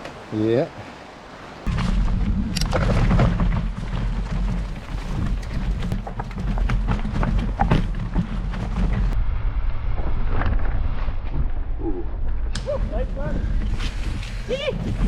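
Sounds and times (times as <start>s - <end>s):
wind buffeting microphone: 11.1s - 15.0s.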